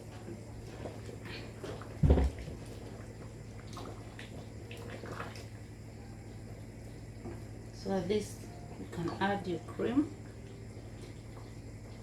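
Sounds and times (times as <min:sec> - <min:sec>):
curry bubbling in pot: 0:00.0 - 0:07.7
steady low hum: 0:00.0 - 0:12.0.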